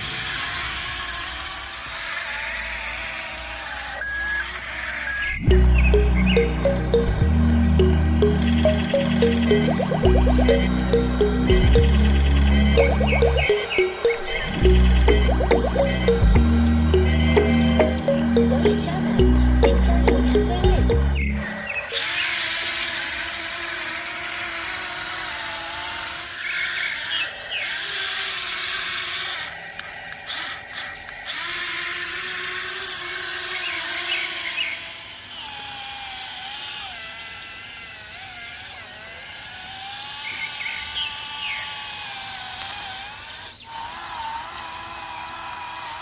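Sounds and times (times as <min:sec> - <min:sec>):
small electric motors whining: 0:00.0 - 0:05.7, 0:21.2 - 0:46.0.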